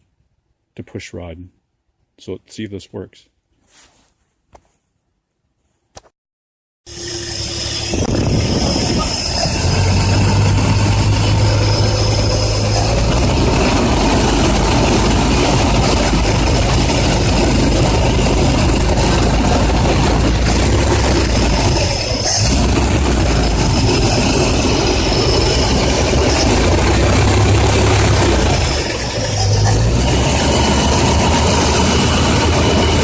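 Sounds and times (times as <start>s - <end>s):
engine idling: 6.9s - 33.0s.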